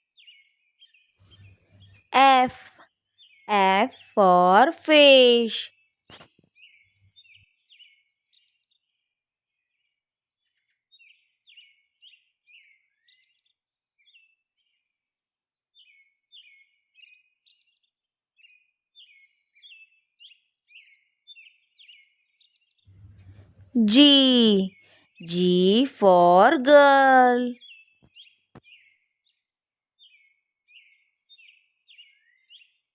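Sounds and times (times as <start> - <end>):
faint birds chirping: 0.2 - 5.5, 22.9 - 29.0.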